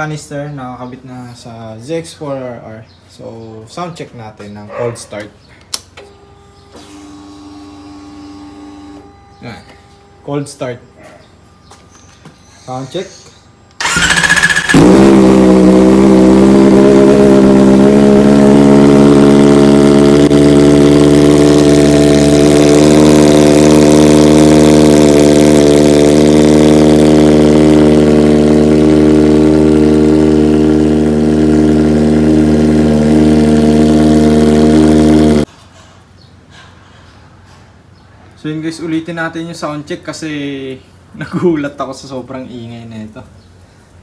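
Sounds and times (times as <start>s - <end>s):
motorcycle engine idling: 13.8s - 35.5s.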